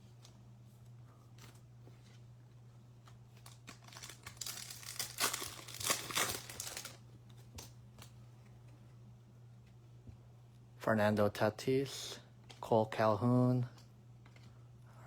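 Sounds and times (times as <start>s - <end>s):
foil wrapper crinkling: 3.3s - 7.0s.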